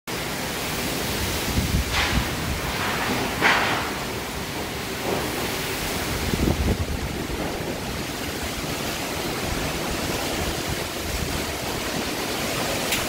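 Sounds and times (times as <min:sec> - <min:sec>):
heavy rain pouring: 0:00.1 - 0:13.0
low rumbles: 0:01.2 - 0:13.0.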